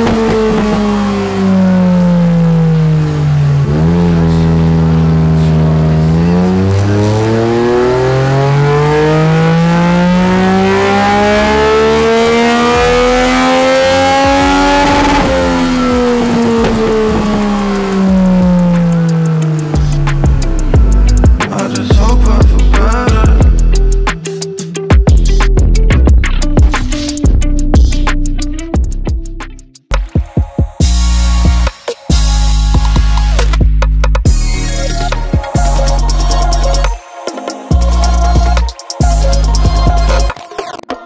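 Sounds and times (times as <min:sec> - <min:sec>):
motorcycle engine on a dyno: 0:00.0 - 0:23.6.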